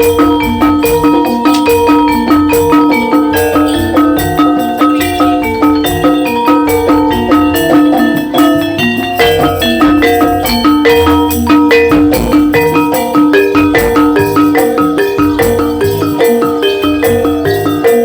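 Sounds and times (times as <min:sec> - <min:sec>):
gamelan mallet instruments: 0:00.0 - 0:18.0
low drum beats: 0:08.8 - 0:17.8.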